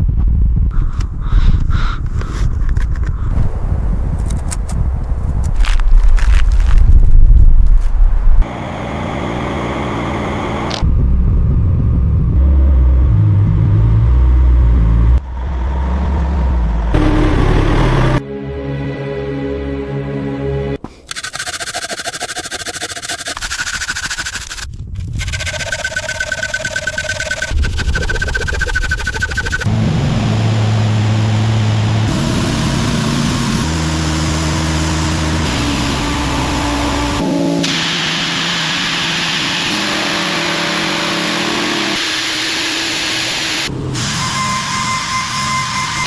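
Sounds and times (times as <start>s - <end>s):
heavy vehicle engine rumbling: 8.4s - 18.2s, 25.1s - 39.2s
background music: 17.0s - 20.8s.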